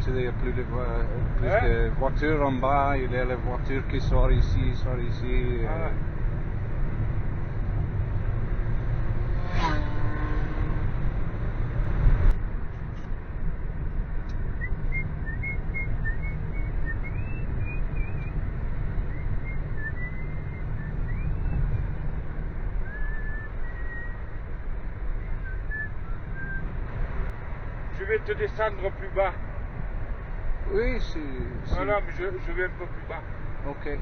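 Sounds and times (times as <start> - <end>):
car engine and road noise: 0.0 - 34.0
person whistling a tune: 22.9 - 24.1.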